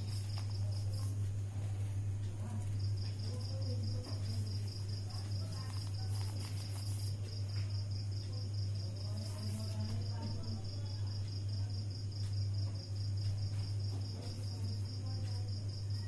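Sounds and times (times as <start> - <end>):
paper rustling: 0.0 - 2.8, 4.1 - 7.7, 9.2 - 10.1
low electrical hum: 0.0 - 16.0.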